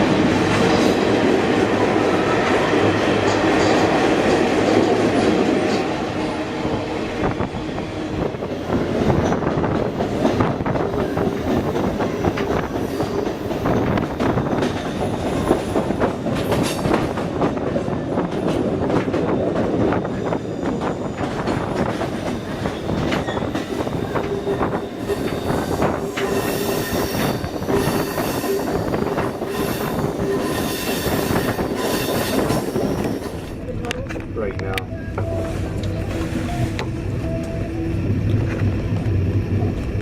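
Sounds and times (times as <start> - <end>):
train wheels rumbling on rails: 0.0 - 40.0
steel wheel squeal: 22.4 - 33.6.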